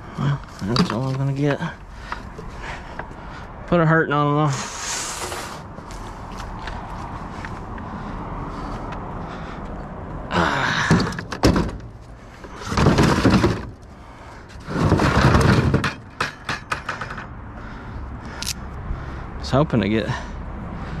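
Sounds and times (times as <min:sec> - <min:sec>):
junk scraping and rustling: 0:00.0 - 0:03.5, 0:10.7 - 0:18.6
sharp knocks and clatters: 0:10.9 - 0:13.8, 0:14.6 - 0:17.4.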